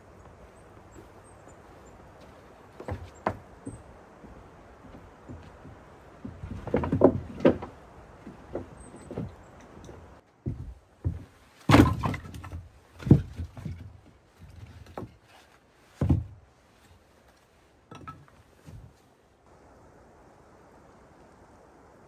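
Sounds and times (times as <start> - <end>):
knocks and thumps: 0.2 - 15.2, 16.0 - 16.4.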